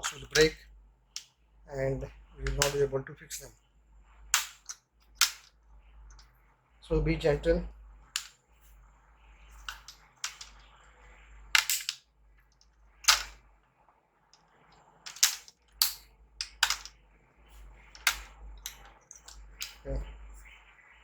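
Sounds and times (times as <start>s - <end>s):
plastic clips snapping loose: 4.4s - 5.5s, 11.6s - 12.0s, 15.1s - 16.9s, 18.0s - 19.8s.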